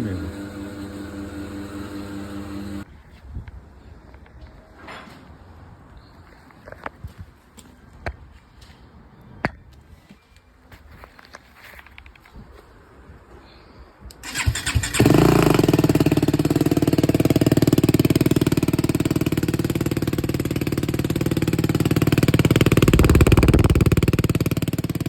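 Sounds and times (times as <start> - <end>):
motorcycle engine starting and idling: 14.1 - 25.0.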